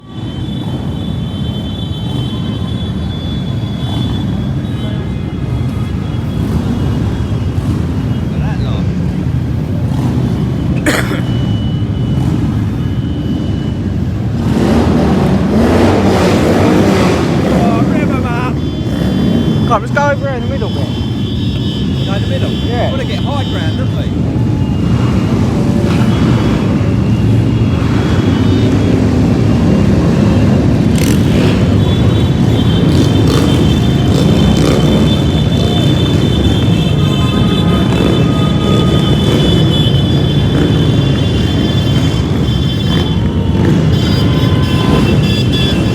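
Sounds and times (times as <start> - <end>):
motorcycle engines running: 0.0 - 45.9
motorcycle engine revving: 6.2 - 10.9, 14.1 - 20.1, 20.9 - 45.9.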